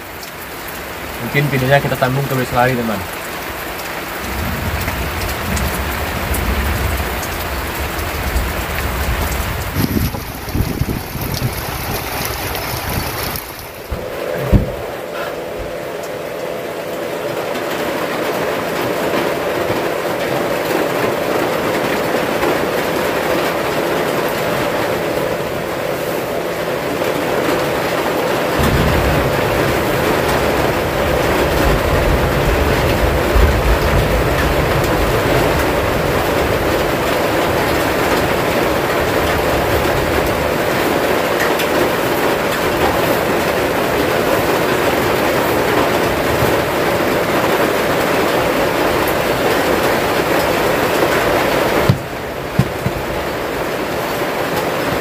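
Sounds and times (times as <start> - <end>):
heavy rain on a wooden roof: 0.0 - 55.0.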